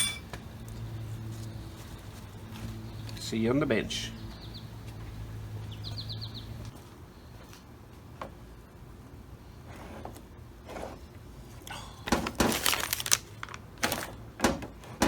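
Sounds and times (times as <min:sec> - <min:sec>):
low steady hum: 0:00.0 - 0:00.4
small bird chirping: 0:05.7 - 0:06.6.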